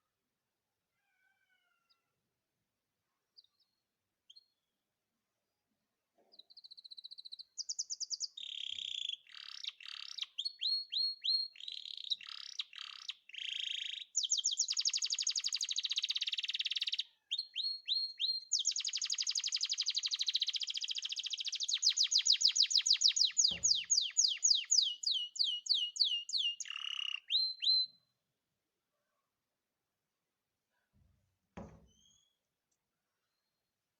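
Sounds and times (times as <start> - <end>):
canary singing trills: 6.5 - 28.0.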